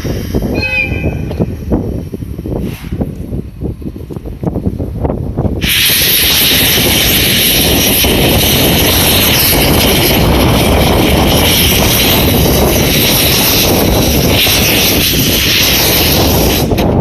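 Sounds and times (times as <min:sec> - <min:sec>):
steam locomotive rhythmic beats: 0:00.0 - 0:01.8
steam venting hiss: 0:00.0 - 0:03.4, 0:05.6 - 0:17.0
low rumble: 0:00.0 - 0:05.6.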